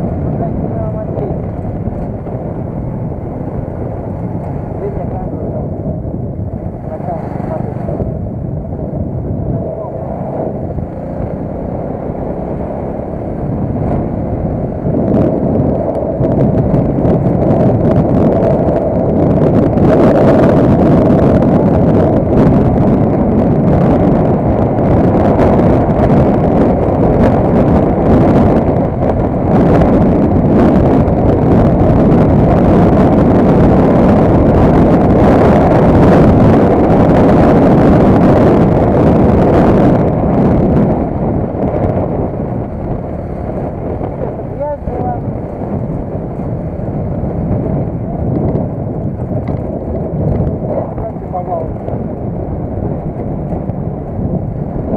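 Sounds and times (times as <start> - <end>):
vehicle engine running: 0.0 - 54.9
wind on microphone: 0.0 - 54.9.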